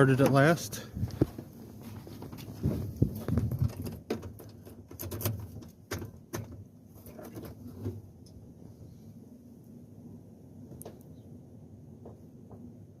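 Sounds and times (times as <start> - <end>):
handling clicks and knocks: 2.2 - 7.6.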